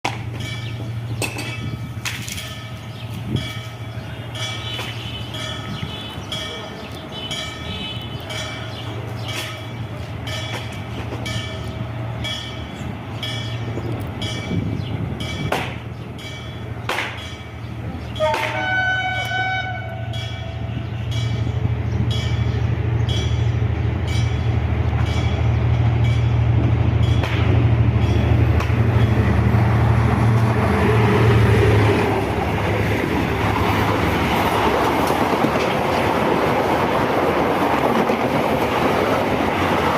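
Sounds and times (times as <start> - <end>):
diesel locomotive engine drone: 0.0 - 39.9
train wheels on rails: 0.0 - 39.9
train horn blast: 18.1 - 21.2.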